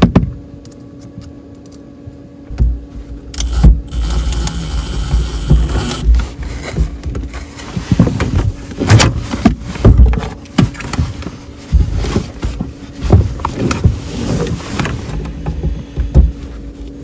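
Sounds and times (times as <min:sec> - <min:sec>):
knocks and clatter of installation work: 0:02.5 - 0:16.8
sharp clicks: 0:03.4 - 0:06.1.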